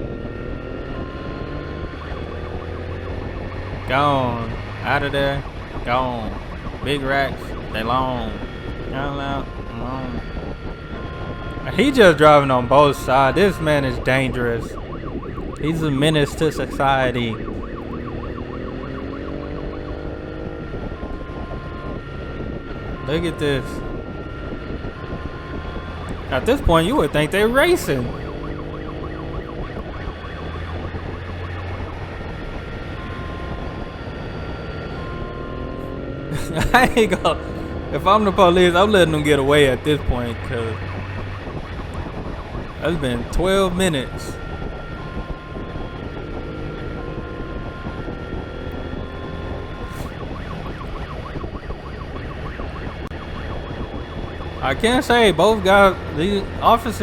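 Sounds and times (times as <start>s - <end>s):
motorcycle engine drone: 0.0s - 57.0s
police siren yelp: 0.0s - 57.0s
road noise: 0.0s - 57.0s.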